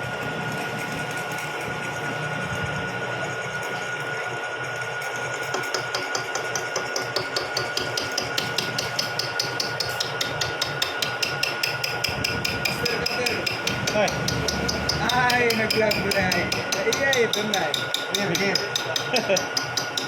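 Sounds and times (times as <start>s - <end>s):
milling machine rapid ticking: 0.0s - 20.0s
milling machine whine: 0.0s - 20.0s.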